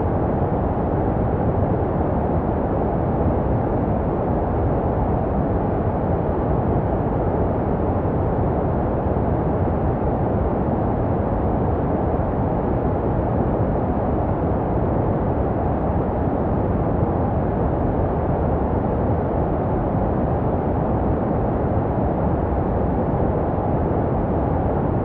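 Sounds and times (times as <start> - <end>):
deep muffled white noise: 0.0 - 25.0.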